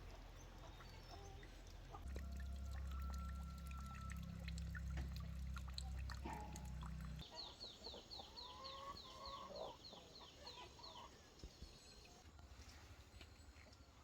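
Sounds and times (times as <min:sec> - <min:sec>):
low steady hum: 0:00.0 - 0:07.2
chickens clucking and chirping: 0:05.8 - 0:12.2.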